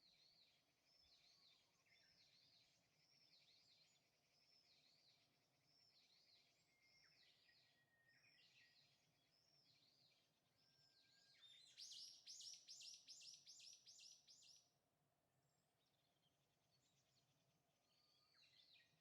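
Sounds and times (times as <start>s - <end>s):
small bird chirping: 11.3s - 14.6s.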